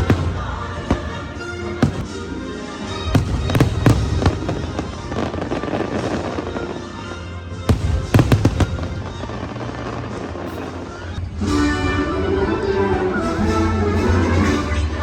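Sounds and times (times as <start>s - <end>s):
fireworks bangs: 0.0s - 2.4s, 3.0s - 7.0s, 7.6s - 11.0s
fireworks crackling: 0.0s - 2.4s, 3.0s - 11.1s
show music: 0.0s - 15.0s.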